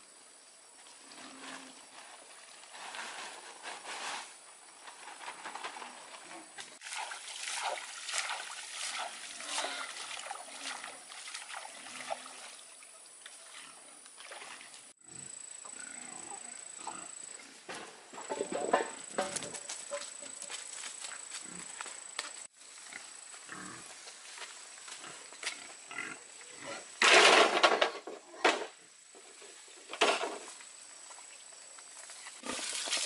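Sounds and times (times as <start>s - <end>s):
pigs eating noises: 6.2s - 12.4s, 18.4s - 22.1s, 22.8s - 26.8s, 32.2s - 33.0s
pigs grunting: 9.3s - 10.8s, 15.0s - 17.7s, 22.8s - 23.9s, 25.0s - 26.9s.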